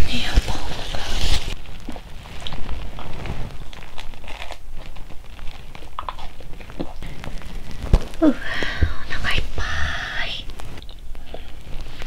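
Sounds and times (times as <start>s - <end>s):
crust crackling in mouth: 0.0s - 12.0s
biting and chewing pizza: 1.8s - 8.3s.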